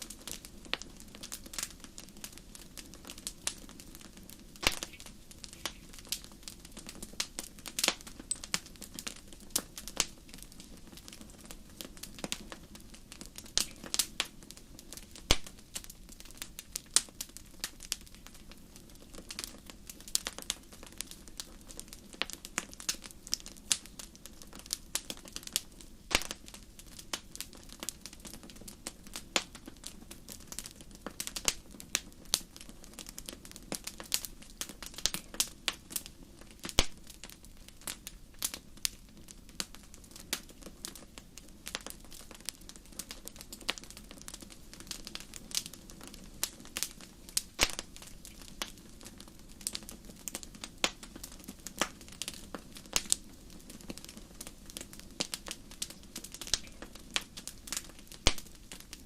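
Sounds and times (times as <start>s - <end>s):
fire crackling in a fireplace: 0.0s - 59.0s.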